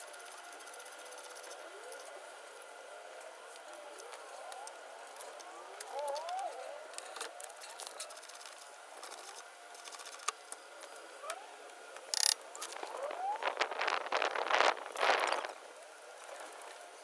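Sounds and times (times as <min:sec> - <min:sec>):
socket ratchet clicking: 0:12.1 - 0:12.4.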